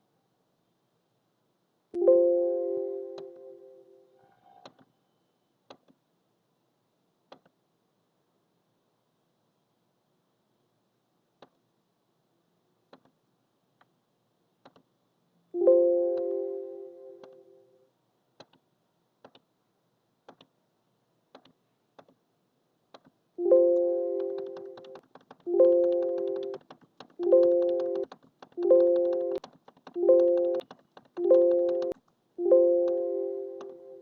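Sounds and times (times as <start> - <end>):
piano chords: 2.0 - 4.0, 15.6 - 17.2, 23.4 - 26.6, 27.2 - 28.0, 28.6 - 29.4, 30.0 - 30.6, 31.2 - 34.0.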